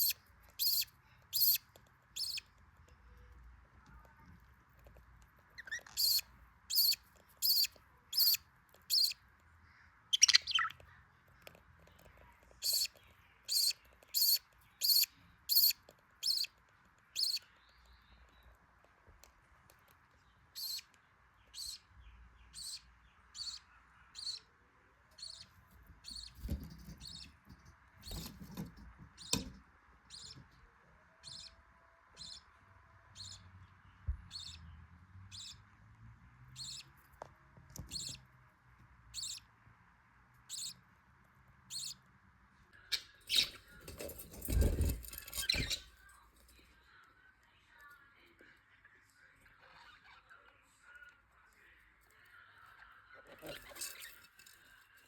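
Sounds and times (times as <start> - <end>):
budgerigars chirping: 0.0 - 1.6, 2.2 - 2.4, 5.6 - 9.2, 10.1 - 10.8, 12.6 - 16.5, 17.2 - 17.5, 20.6 - 20.8, 22.5 - 23.6, 24.2 - 24.4, 26.0 - 26.4, 34.3 - 34.7, 35.3 - 35.6, 36.6 - 36.9, 37.9 - 38.2, 39.1 - 39.4, 40.5 - 40.8, 41.7 - 42.0.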